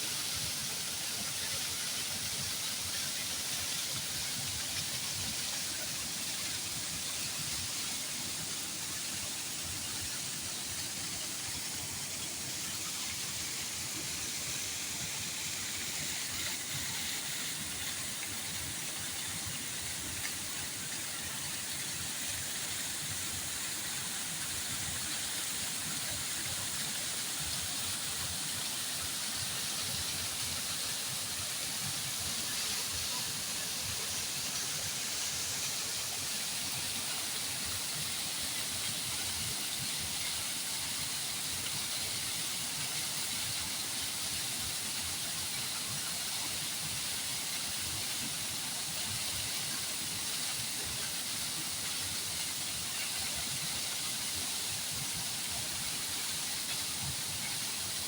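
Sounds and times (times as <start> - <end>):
water rushing: 8.3 - 46.0.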